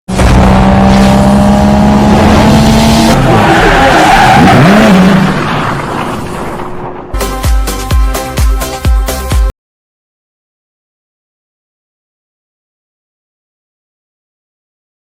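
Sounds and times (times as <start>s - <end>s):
car engine revving: 0.1s - 5.5s.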